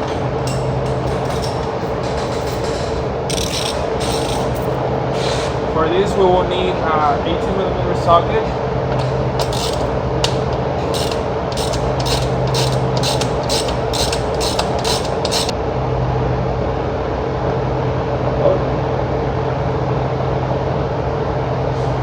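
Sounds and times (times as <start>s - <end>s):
socket ratchet clicking: 3.3s - 4.7s, 8.9s - 15.5s.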